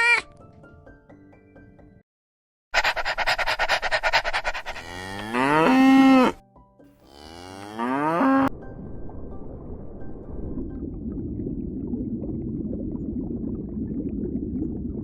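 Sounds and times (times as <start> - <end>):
cow mooing: 4.7 - 6.4, 7.0 - 8.5.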